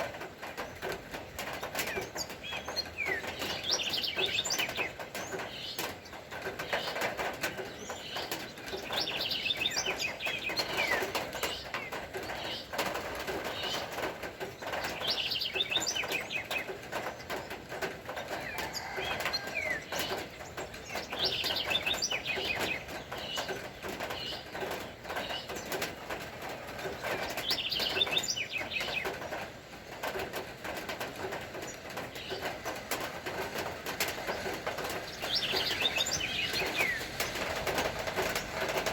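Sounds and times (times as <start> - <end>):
lower bird calls: 34.2 - 37.6.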